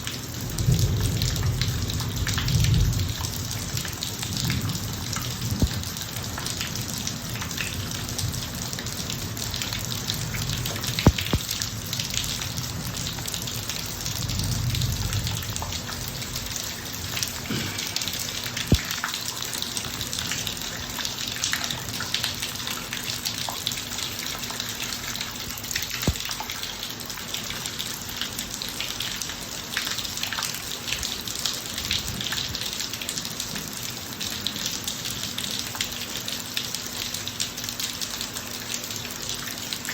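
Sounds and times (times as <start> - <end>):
rain falling on a driveway: 0.0 - 39.9
sharp water drop taps: 11.0 - 11.5, 26.0 - 26.2.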